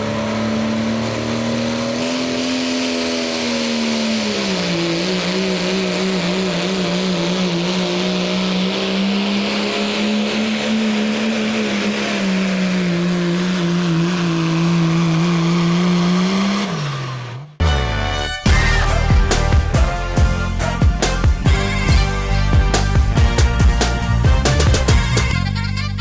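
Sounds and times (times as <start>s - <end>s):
diesel truck engine under load: 0.0s - 17.6s, 18.5s - 26.0s.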